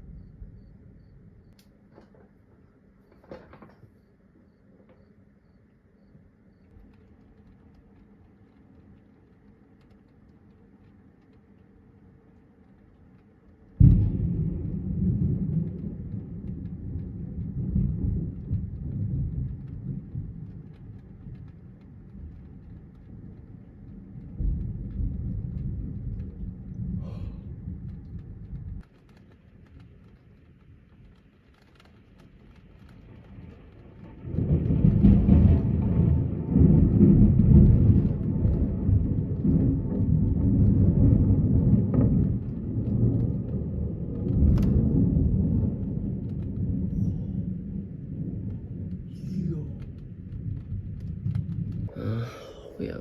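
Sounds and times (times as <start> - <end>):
faint outdoor background: 0.0 - 53.0
loud thunder clap rumbling: 13.8 - 28.9, 32.6 - 53.0.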